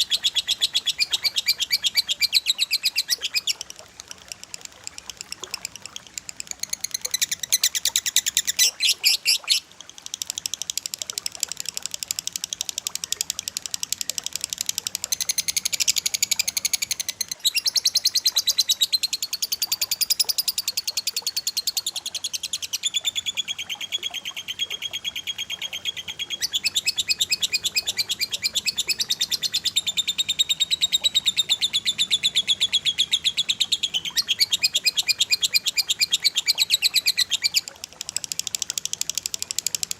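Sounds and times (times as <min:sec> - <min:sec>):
bird chirping in trills: 0:00.0 - 0:03.6, 0:04.9 - 0:10.6, 0:15.0 - 0:37.6.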